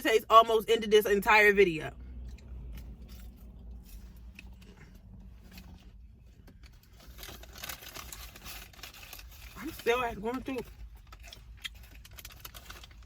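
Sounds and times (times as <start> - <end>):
low steady hum: 0.0 - 13.0
paper packaging crinkling: 6.8 - 13.0.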